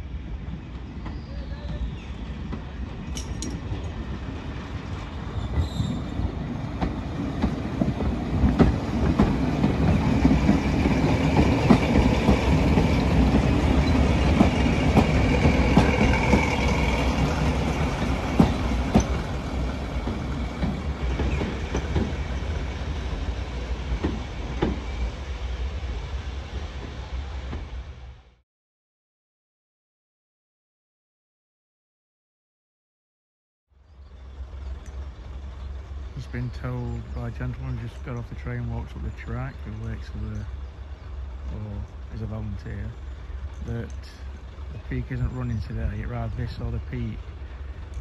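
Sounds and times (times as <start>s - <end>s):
diesel train engine rumble: 0.0s - 28.4s, 33.8s - 48.0s
wheels clicking over rail joints: 2.4s - 4.2s, 5.5s - 23.2s
wheel squeal: 5.3s - 6.2s.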